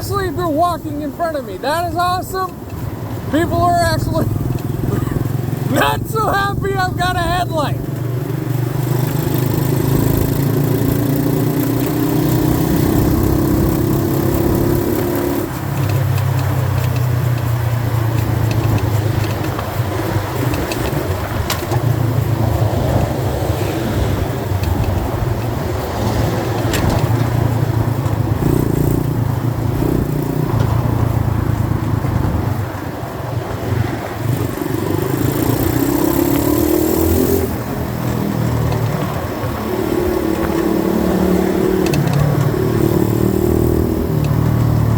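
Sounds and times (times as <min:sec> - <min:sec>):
dirt bike engine revving: 0:03.3 - 0:16.2, 0:25.9 - 0:32.1, 0:33.7 - 0:44.9.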